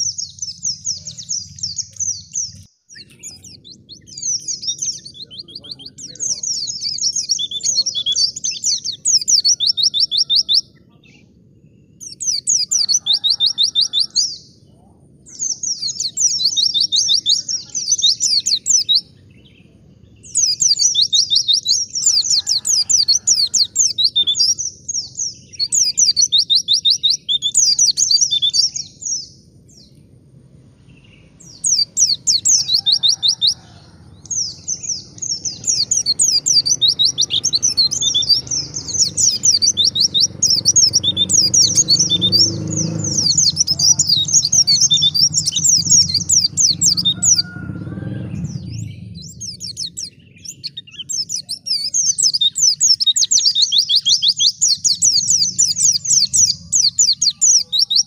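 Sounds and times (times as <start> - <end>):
bird twittering song: 0.0 - 58.0
low rumble: 27.6 - 32.8, 33.6 - 51.3.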